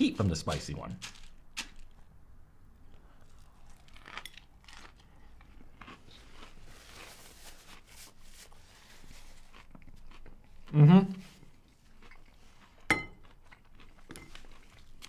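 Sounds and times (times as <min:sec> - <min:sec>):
crisp chewing crunches: 0:03.0 - 0:15.0.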